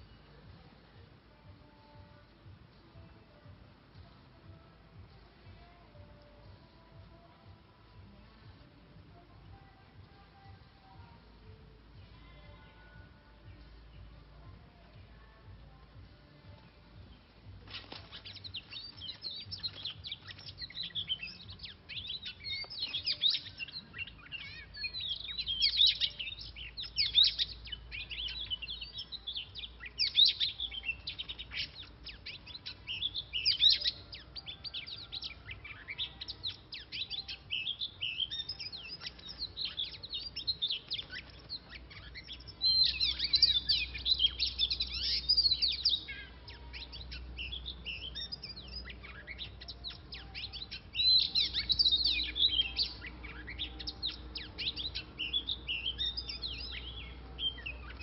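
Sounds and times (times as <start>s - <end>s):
bird chirping sharply: 17.1s - 58.0s.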